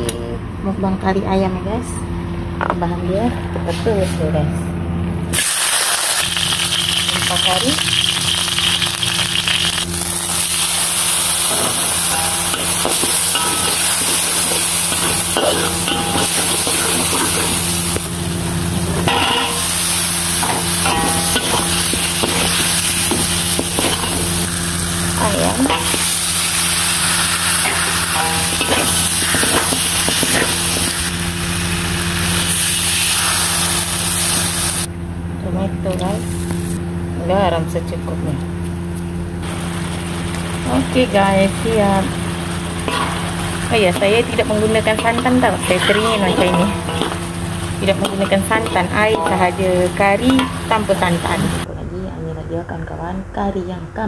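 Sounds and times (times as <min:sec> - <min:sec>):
steady low hum: 0:00.0 - 0:54.0
food sizzling in hot oil: 0:05.3 - 0:34.9, 0:39.4 - 0:51.7
spatula scraping a pan: 0:45.0 - 0:47.2.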